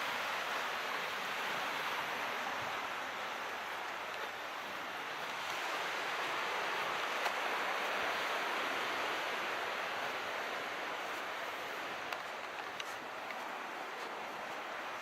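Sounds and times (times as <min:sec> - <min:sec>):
calm sea surf hissing: 0:00.0 - 0:15.0
faint ticks: 0:03.8 - 0:04.4, 0:11.9 - 0:14.6.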